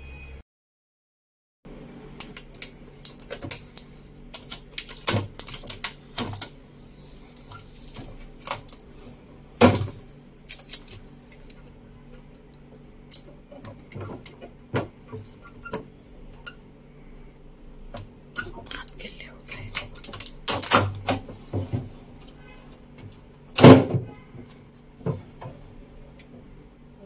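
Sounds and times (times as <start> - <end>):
faint steady hum: 1.7 - 27.0
hands handling packing tape: 2.2 - 6.6, 7.3 - 8.9, 9.6 - 11.7, 19.5 - 21.2.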